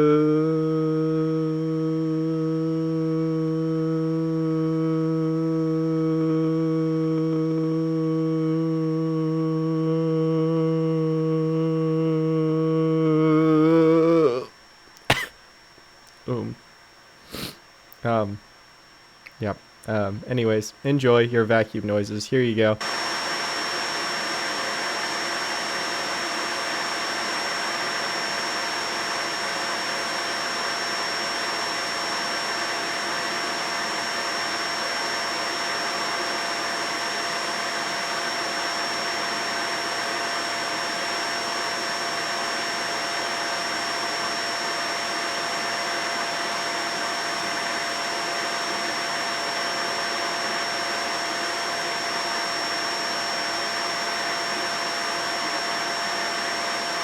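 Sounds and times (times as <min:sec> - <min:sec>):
vacuum cleaner running: 0:15.1 - 0:15.3, 0:17.2 - 0:17.6, 0:22.8 - 0:57.0.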